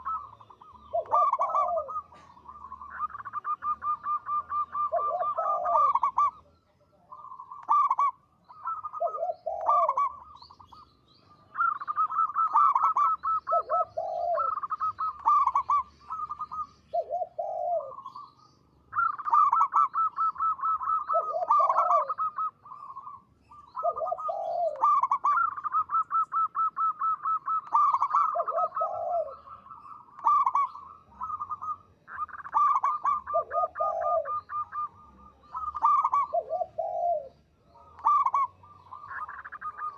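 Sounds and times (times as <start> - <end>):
dove singing staccato cooing: 0.0 - 39.9.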